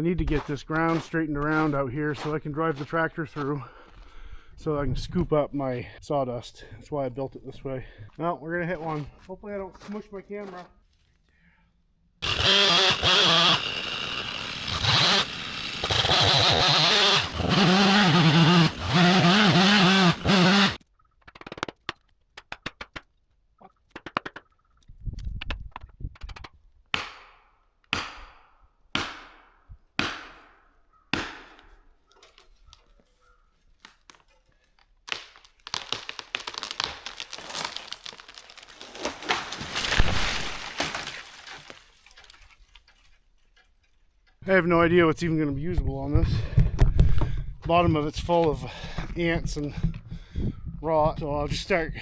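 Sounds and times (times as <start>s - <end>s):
branches breaking: 12.2s - 20.8s, 33.8s - 43.2s
chainsaw cutting a tree: 12.2s - 20.8s, 35.1s - 41.8s
wood cracking: 12.2s - 24.6s, 33.7s - 44.4s
heavy thud of falling tree: 38.9s - 41.4s.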